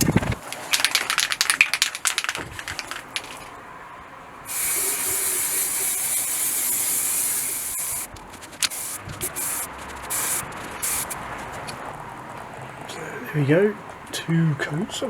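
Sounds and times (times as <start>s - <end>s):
aerosol can spraying: 4.5s - 11.7s.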